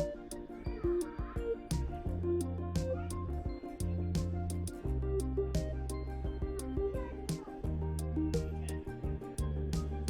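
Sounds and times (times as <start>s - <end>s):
background music with percussion: 0.0s - 10.0s.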